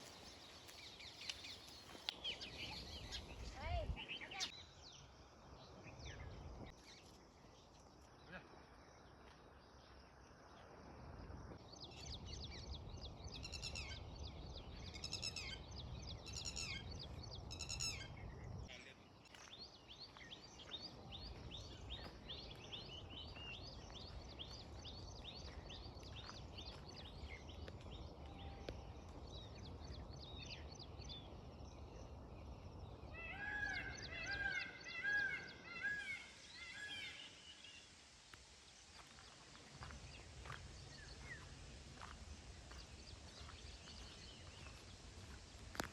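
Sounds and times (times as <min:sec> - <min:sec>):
birds chirping: 0:00.0 - 0:07.0, 0:11.7 - 0:38.1, 0:38.8 - 0:45.9
loud arched bird calls: 0:33.1 - 0:37.7.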